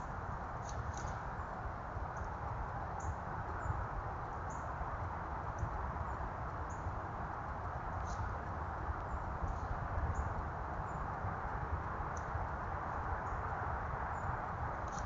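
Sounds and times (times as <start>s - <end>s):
microphone hiss: 0.0s - 15.0s
faint high ticks: 5.4s - 13.5s.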